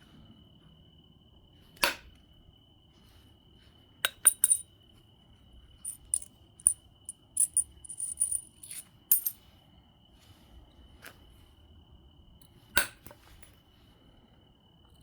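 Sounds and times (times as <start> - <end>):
stone clicks: 5.9 - 9.4.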